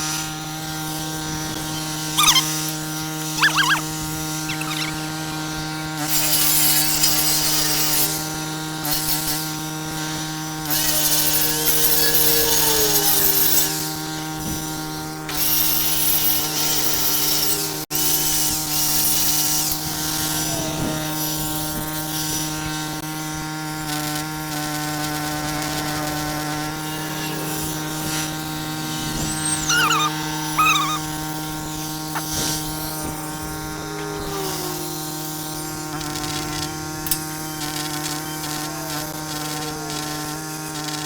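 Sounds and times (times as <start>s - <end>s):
engine humming: 0.0s - 6.1s, 24.9s - 41.0s
short high squeaks: 1.6s - 5.3s, 26.4s - 39.5s.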